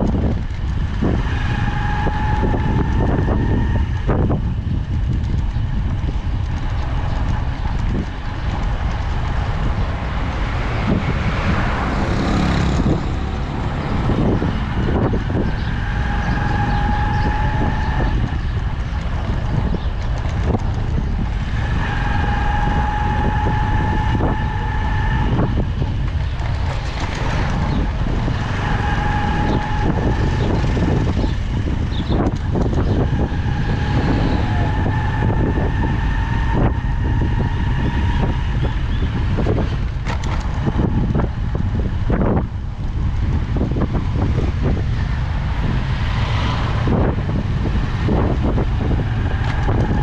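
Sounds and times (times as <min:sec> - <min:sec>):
road noise: 0:00.0 - 0:50.0
wind on microphone: 0:00.0 - 0:50.0
high steady whine: 0:20.9 - 0:43.5.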